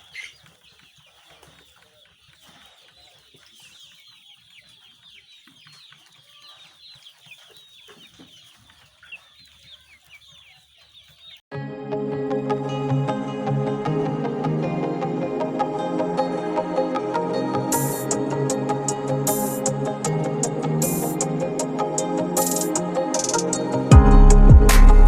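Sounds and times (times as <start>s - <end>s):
chicks peeping: 0.0s - 11.4s, 20.8s - 23.5s
background music: 11.5s - 25.0s.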